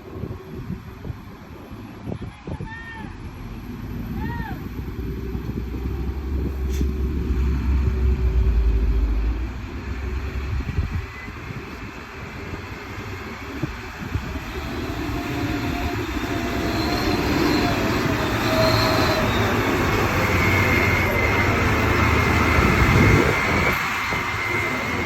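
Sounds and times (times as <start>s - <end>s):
heavy truck engine drone: 3.2s - 25.0s
faint whine: 5.8s - 14.6s.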